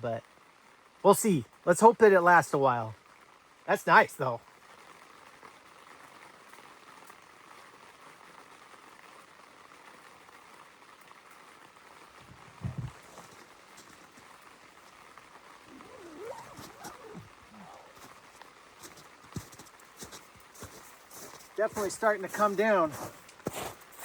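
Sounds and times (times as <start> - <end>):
rain falling on tent: 0.0 - 24.0
dull thump: 12.3 - 13.4
faint pitch-bending sounds: 15.6 - 18.4.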